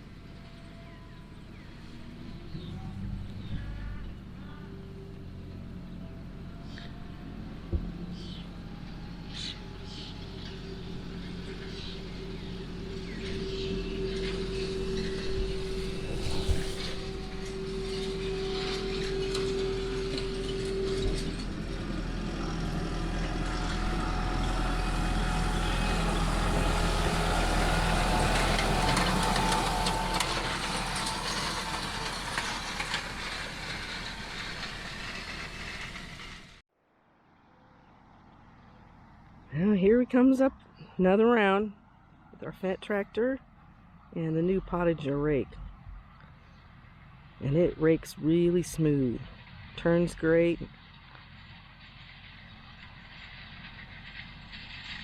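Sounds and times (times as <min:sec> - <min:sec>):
tractor engine under load: 0:00.0 - 0:36.6, 0:41.8 - 0:55.0
steady whine: 0:06.3 - 0:36.6.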